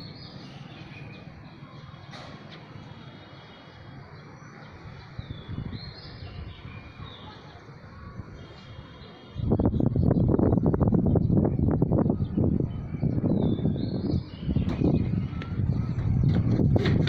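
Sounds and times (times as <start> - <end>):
small birds chirping: 0.0 - 16.8
wind buffeting microphone: 4.7 - 17.0.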